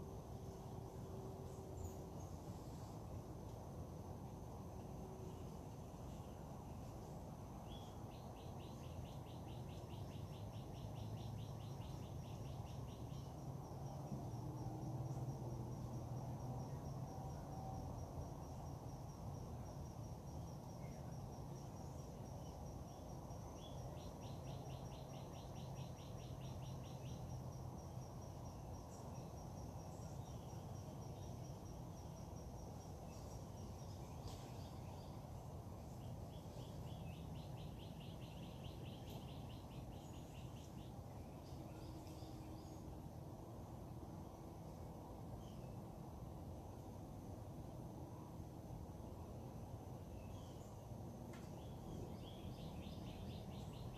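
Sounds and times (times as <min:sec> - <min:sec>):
insect pulsing trill: 0:07.6 - 0:42.9.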